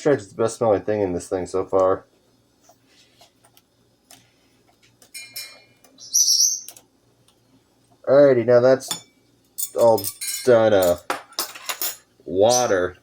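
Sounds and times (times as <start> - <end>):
pet bird whistled call: 6.0 - 6.7
shrill bird call: 6.0 - 6.7.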